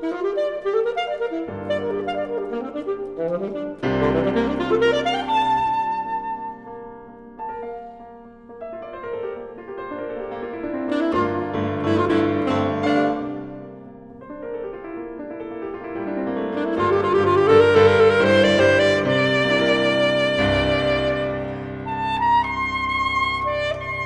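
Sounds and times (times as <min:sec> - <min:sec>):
alto saxophone: 0:00.0 - 0:06.8, 0:10.6 - 0:13.8, 0:16.1 - 0:24.0
solo piano chords and runs: 0:00.0 - 0:24.0.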